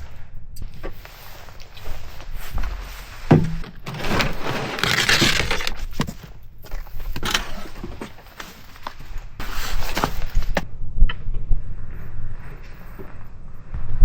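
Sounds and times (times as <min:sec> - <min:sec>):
firewood rustling: 0:02.7 - 0:07.8.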